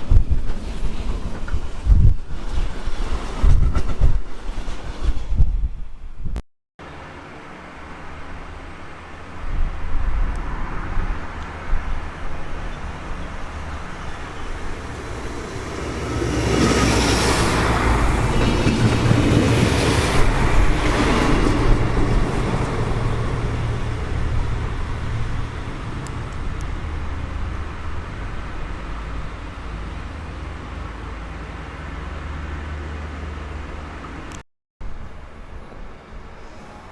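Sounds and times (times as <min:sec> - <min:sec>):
train passing: 0:06.8 - 0:34.3.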